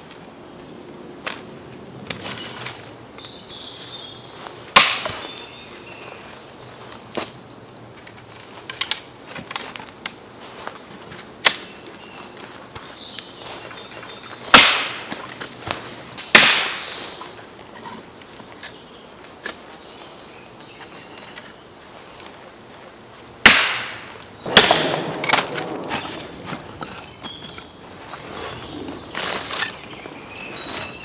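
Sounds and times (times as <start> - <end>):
heavy axe blows on firewood: 4.8 - 5.3, 14.5 - 15.3, 16.2 - 17.0, 23.4 - 26.9
wood splintering crack: 14.5 - 15.0, 24.5 - 26.4.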